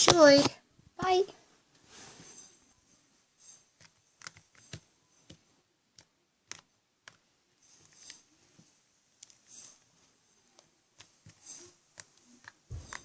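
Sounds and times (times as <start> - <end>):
soft hisses: 0.1 - 3.9, 7.6 - 13.0
faint clicks and taps: 3.8 - 9.7, 10.5 - 13.0.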